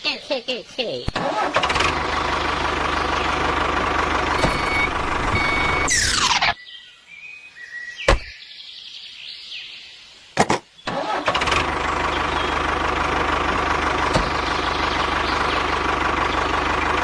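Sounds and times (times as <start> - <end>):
tractor motor running: 1.1 - 6.3, 10.9 - 17.0.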